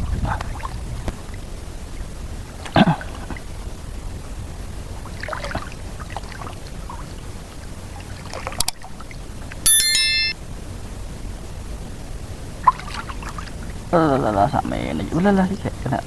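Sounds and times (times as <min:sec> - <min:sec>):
steady outdoor noise: 0:00.0 - 0:16.0
electronic chime of high tones: 0:09.7 - 0:10.4.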